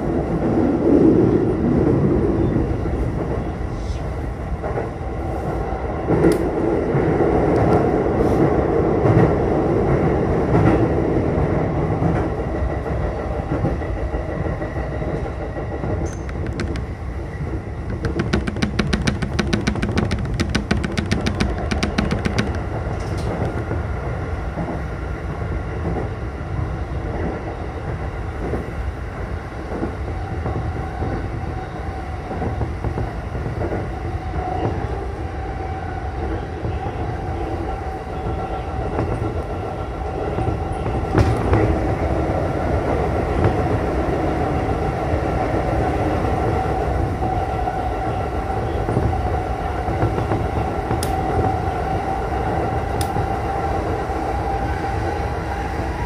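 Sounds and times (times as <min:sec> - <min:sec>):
train wheels rumbling on rail: 0:00.0 - 0:56.0
wheels clicking: 0:16.0 - 0:17.0, 0:17.8 - 0:23.7.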